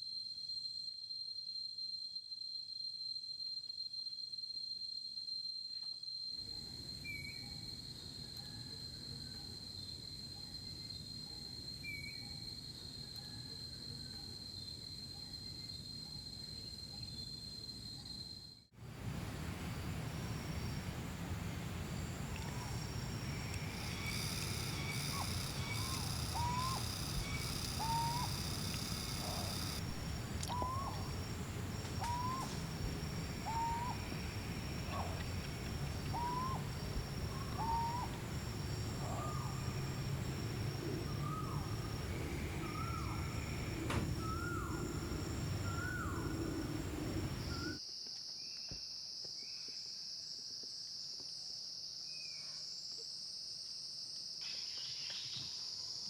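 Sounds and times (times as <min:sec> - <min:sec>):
high-pitched insect drone: 0:22.0 - 0:47.8
bird calling hooked notes: 0:22.4 - 0:47.8.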